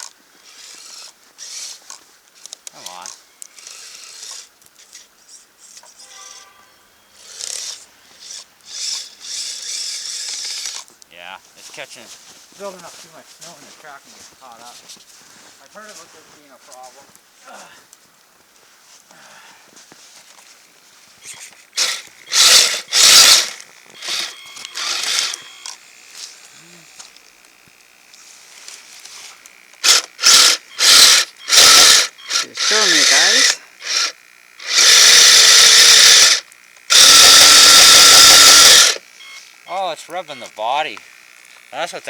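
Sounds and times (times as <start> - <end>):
electric motor whirring: 0.0 - 2.0, 2.6 - 10.9, 21.0 - 42.0
faint steady whine: 0.0 - 42.0
tracks grinding through snow: 11.4 - 17.6
short steady whine: 21.2 - 42.0.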